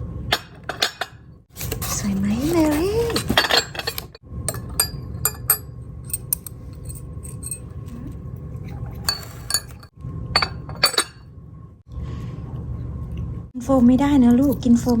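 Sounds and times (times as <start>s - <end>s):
glass and dishware clinking: 0.3s - 1.2s, 3.1s - 7.8s, 8.6s - 11.3s.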